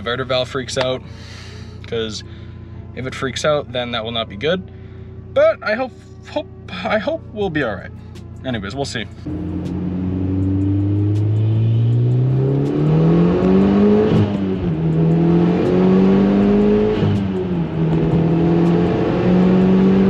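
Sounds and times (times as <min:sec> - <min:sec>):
turbocharged car engine accelerating: 0:09.2 - 0:20.0.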